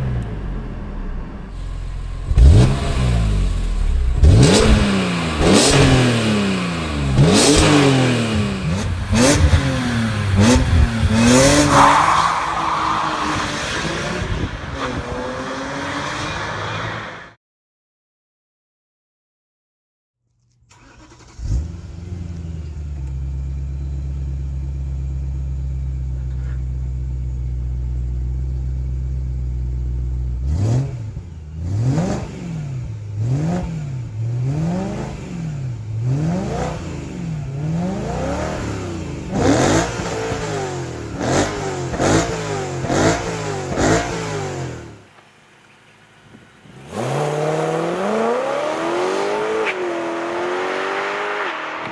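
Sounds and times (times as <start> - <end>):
car engine idling: 0.0 - 4.5, 21.9 - 30.5
car engine starting: 0.0 - 17.2, 20.7 - 51.9
car engine revving: 0.0 - 17.3, 30.4 - 45.1, 46.6 - 51.9.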